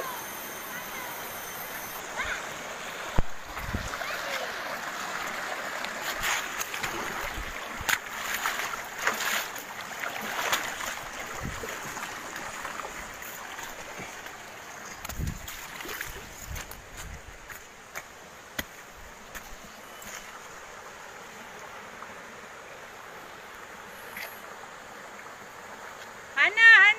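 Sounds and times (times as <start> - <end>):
waterfall rushing: 0.0 - 7.8.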